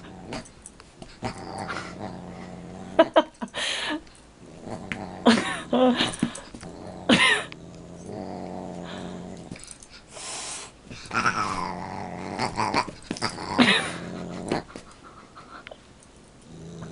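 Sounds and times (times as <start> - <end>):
cat growling low: 1.2 - 3.2, 4.4 - 6.0, 6.6 - 9.7, 11.0 - 14.8, 16.4 - 16.9.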